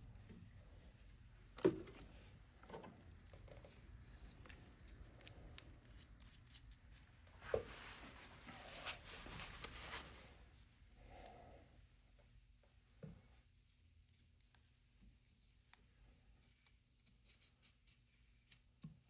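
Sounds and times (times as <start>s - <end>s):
rustling and scraping: 1.6s - 10.4s.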